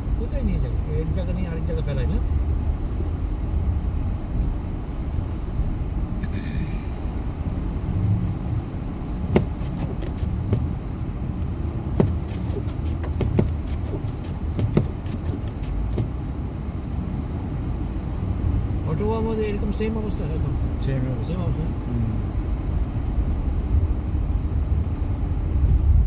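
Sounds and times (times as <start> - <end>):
truck engine and tyres rumbling: 0.0 - 26.0
sharp knocks: 9.3 - 10.7, 12.0 - 16.2.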